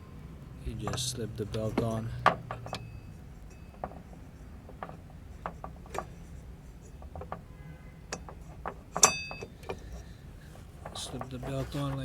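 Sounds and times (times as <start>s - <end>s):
metallic clicks and knocks: 0.7s - 7.5s, 8.1s - 10.1s, 10.7s - 12.0s.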